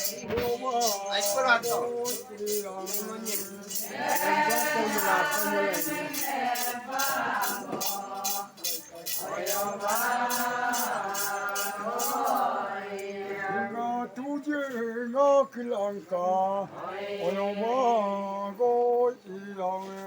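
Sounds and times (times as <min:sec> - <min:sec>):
shaker rattle beat: 0:00.0 - 0:13.2
person singing chant-like song: 0:00.0 - 0:20.0.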